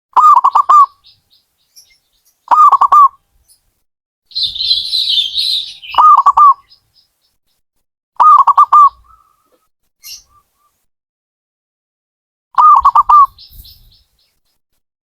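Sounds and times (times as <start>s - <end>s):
dove cooing: 0.2s - 0.9s, 2.5s - 3.1s, 4.4s - 6.6s, 8.2s - 9.6s, 12.6s - 13.6s.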